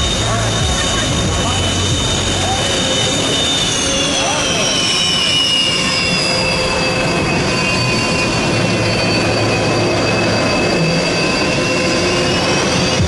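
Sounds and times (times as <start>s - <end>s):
jet engines roaring with turbine whine: 0.0s - 13.0s.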